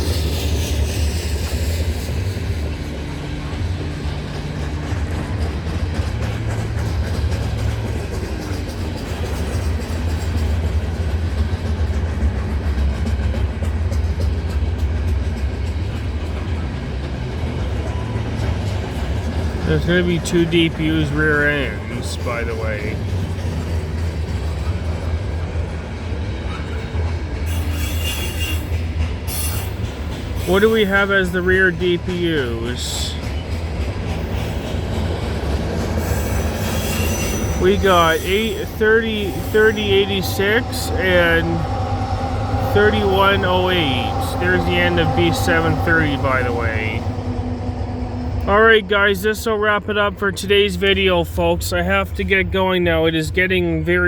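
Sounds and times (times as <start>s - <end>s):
train wheels rumbling on rails: 0.0s - 54.0s
high-pitched wheel noise: 34.0s - 49.2s.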